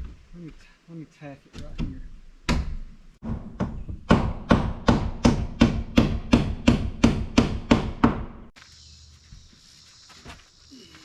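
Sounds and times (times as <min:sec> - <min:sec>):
hammer striking nail into plywood: 0:02.5 - 0:08.4.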